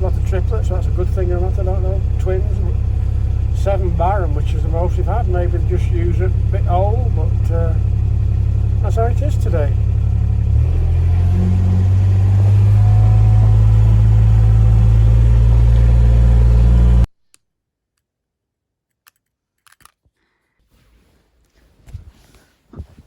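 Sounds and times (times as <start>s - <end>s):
vehicle engine humming: 0.0s - 17.1s.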